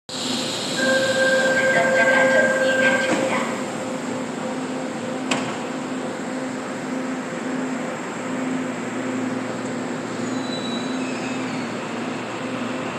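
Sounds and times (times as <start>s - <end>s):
train equipment pulsing low tone: 0.2s - 10.5s.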